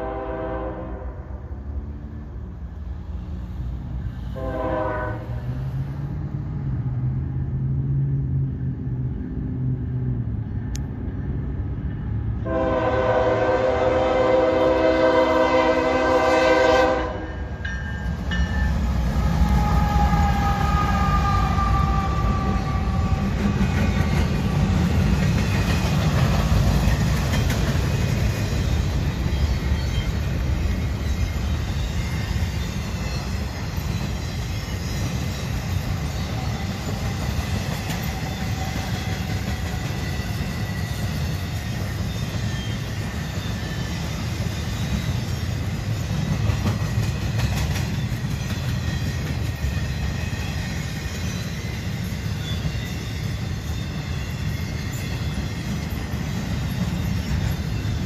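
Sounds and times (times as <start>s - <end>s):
train air horn: 0.0s - 1.4s, 4.3s - 5.6s, 12.4s - 17.4s, 19.4s - 23.4s
freight train rumbling past: 0.0s - 58.0s.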